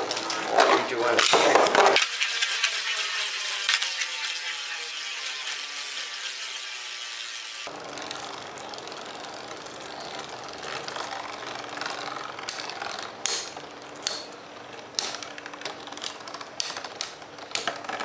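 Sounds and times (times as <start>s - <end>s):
spinning tops clashing clicks: 2.0s - 7.7s
spinning tops rasping hiss: 2.0s - 7.7s.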